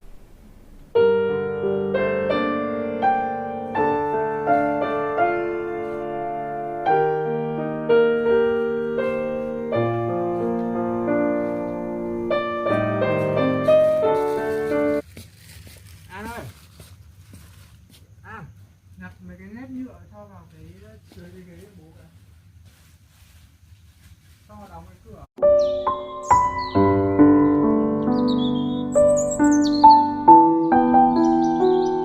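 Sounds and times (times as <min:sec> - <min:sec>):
slow piano melody: 0:00.0 - 0:15.0, 0:25.4 - 0:32.0.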